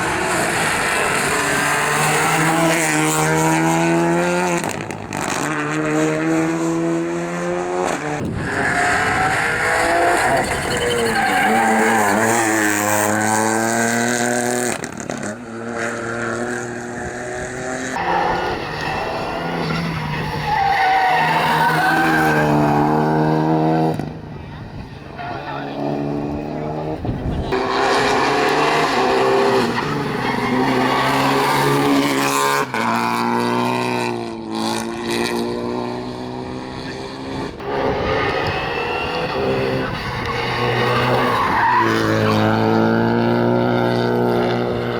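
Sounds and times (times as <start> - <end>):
rally car engines revving: 0.0 - 44.9
tyre squeal: 8.4 - 12.8, 18.0 - 23.0, 37.9 - 42.5.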